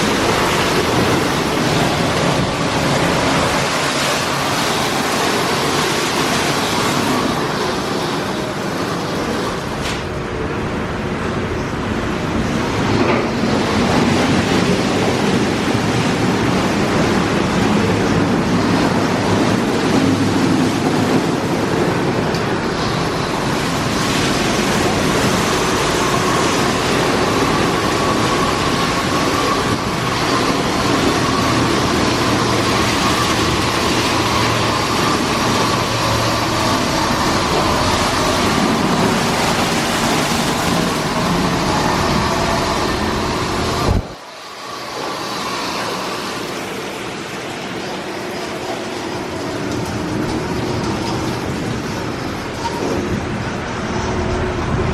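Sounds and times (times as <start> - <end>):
car wash spray and machinery: 0.0 - 54.9.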